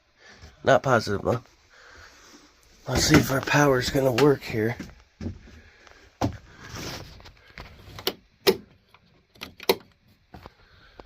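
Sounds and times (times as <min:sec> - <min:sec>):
handling knocks and clicks: 0:02.9 - 0:05.4, 0:07.9 - 0:10.5.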